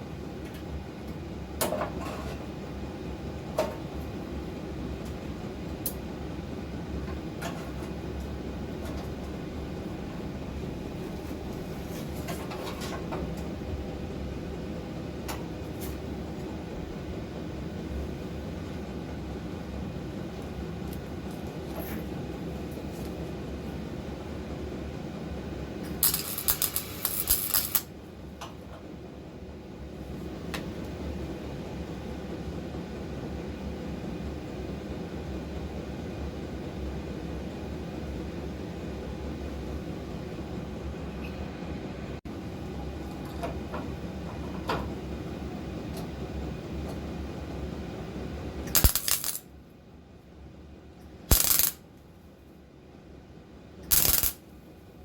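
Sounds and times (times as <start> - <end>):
welding arc crackling: 26.0 - 27.9, 48.7 - 49.4, 51.3 - 51.8, 53.9 - 54.4.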